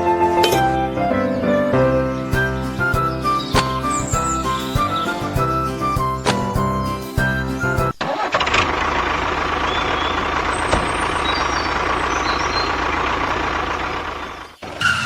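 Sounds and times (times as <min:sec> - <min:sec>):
faint bird chirps: 0:01.1 - 0:08.1, 0:09.6 - 0:13.0.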